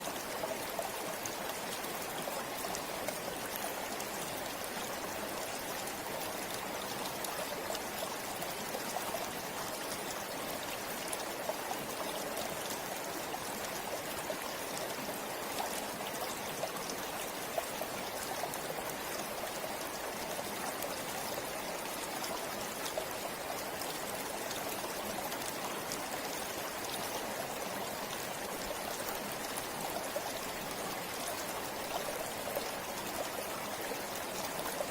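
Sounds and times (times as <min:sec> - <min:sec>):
stream flowing with small splashes: 0:00.0 - 0:34.9.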